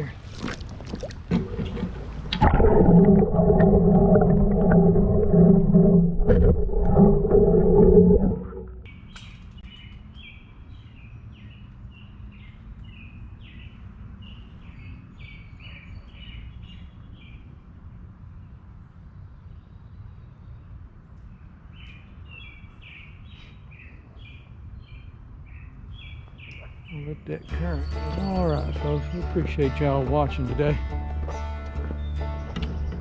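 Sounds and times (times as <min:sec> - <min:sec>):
low background rumble: 0:00.0 - 0:08.9
bird chirping: 0:21.4 - 0:30.4.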